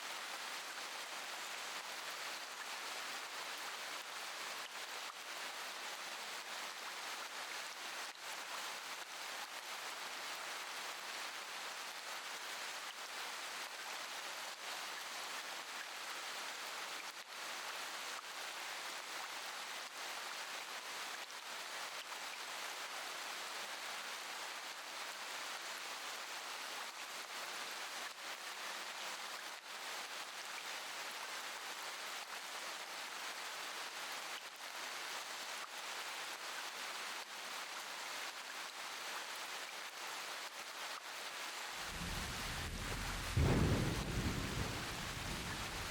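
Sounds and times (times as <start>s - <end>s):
steady rain hiss: 0.0s - 45.9s
faint raindrop clicks: 41.8s - 45.9s.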